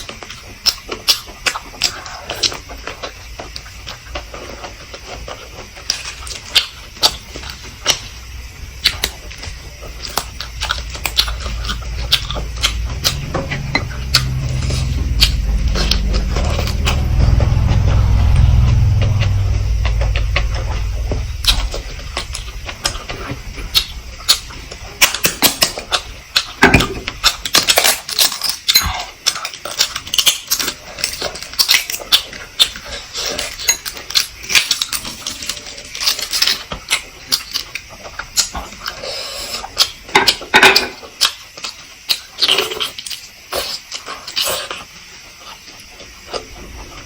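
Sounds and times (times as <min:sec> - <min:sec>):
wet chewing and slurping: 0:00.0 - 0:47.0
low rumble: 0:07.4 - 0:27.4.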